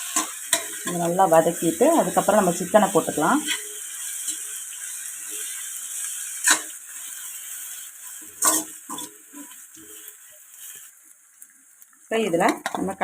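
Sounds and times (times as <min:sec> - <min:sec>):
food sizzling in oil: 0:00.0 - 0:13.0
spoon scraping and knocking pan: 0:08.3 - 0:09.6.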